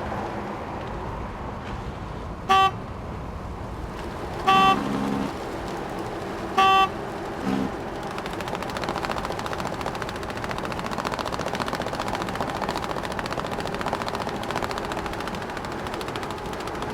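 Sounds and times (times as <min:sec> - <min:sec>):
short horn beep: 0:02.5 - 0:02.8, 0:04.4 - 0:05.3, 0:06.5 - 0:07.7
fast mechanical rattle: 0:04.5 - 0:16.9.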